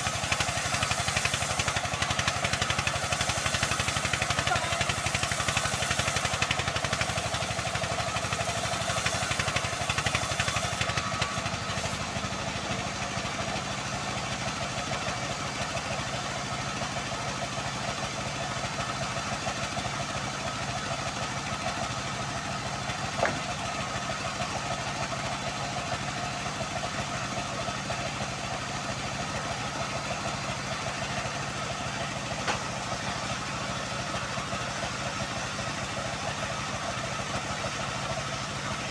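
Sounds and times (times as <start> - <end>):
sawmill engine running: 0.0 - 38.9
sharp knock: 23.2 - 23.5.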